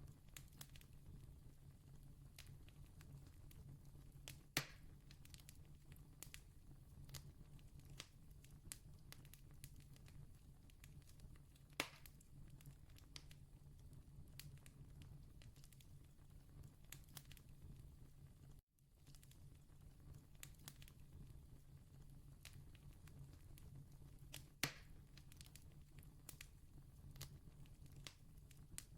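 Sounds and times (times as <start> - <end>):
campfire crackling: 0.3 - 1.5, 2.3 - 6.5, 7.1 - 17.8, 19.0 - 28.9.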